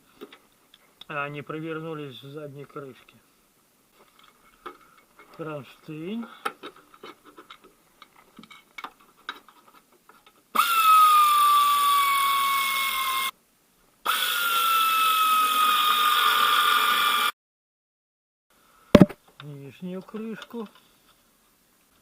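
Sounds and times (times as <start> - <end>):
cordless drill driving bolts: 10.6 - 13.3, 14.1 - 17.3.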